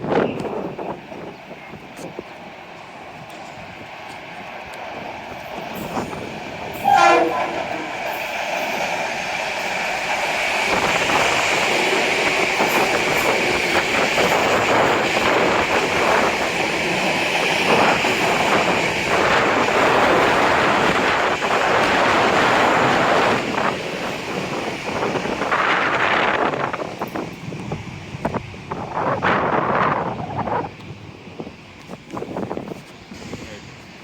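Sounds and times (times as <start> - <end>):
train wheels on rails: 0.0 - 34.0
train horn toot: 6.8 - 8.2.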